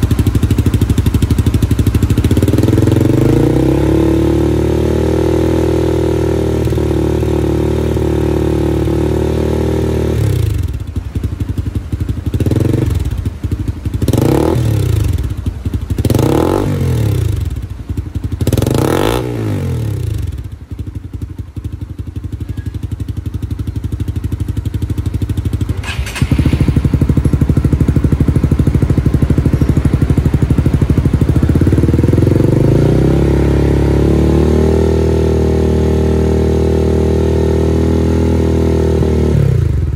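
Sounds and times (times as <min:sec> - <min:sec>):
motorcycle engine revving and idling: 0:00.0 - 0:39.9.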